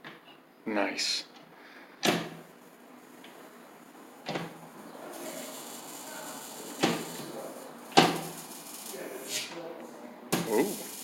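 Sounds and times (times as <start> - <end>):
faint hiss: 1.1 - 11.0
electric spark snapping: 4.2 - 9.5, 10.4 - 11.0.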